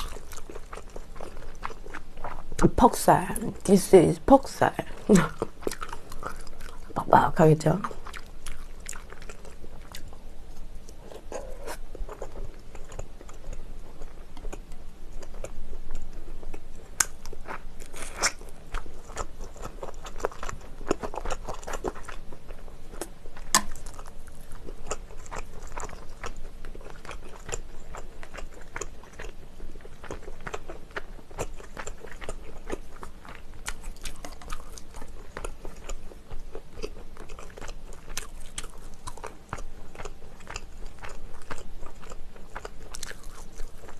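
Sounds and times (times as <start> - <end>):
chewing and biting meat: 0.0 - 2.6, 5.3 - 7.0, 7.8 - 43.9.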